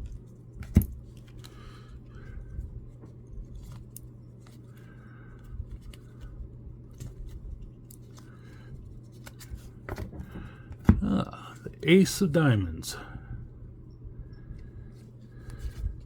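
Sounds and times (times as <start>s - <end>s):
cards clicking and rustling: 0.0s - 1.8s, 2.9s - 6.3s, 6.9s - 10.2s
low steady hum: 0.0s - 16.0s.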